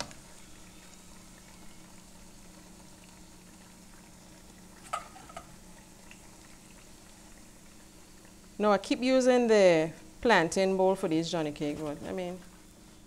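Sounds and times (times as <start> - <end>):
cakes frying in oil: 0.0 - 13.0.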